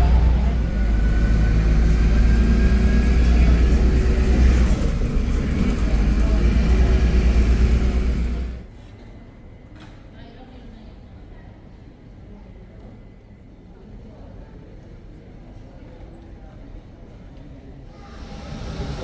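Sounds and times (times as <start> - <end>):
vehicle rumble from inside: 0.0 - 8.7.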